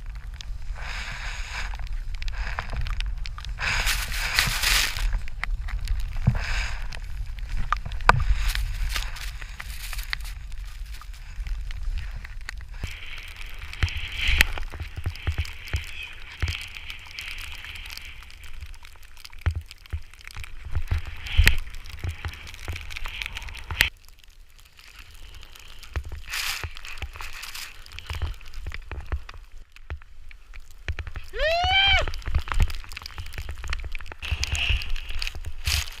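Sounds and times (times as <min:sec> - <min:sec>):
snowboard hissing through snow: 0:00.6 - 0:02.8, 0:03.5 - 0:05.2, 0:06.2 - 0:07.2, 0:26.3 - 0:27.8
rising vocal cry: 0:31.3 - 0:32.2.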